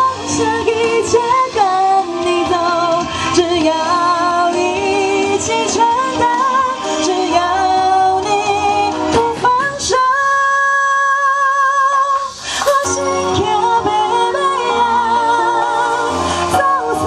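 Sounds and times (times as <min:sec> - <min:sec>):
live music accompaniment: 0:00.0 - 0:17.0
woman singing: 0:00.0 - 0:17.0.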